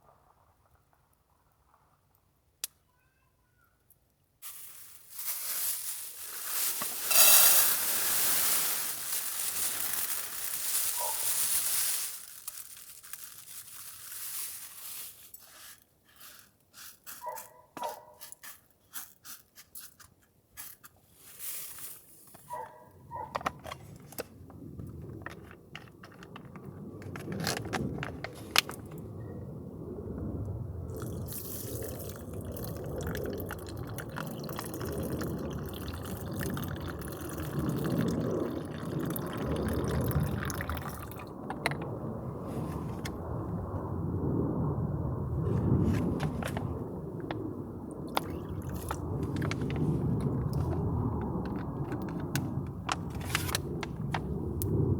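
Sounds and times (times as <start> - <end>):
handling clicks and knocks: 22.3 - 29.0, 40.6 - 42.0, 45.7 - 47.4, 48.1 - 54.3
water bubbling in a pot: 30.9 - 41.8, 47.2 - 52.0.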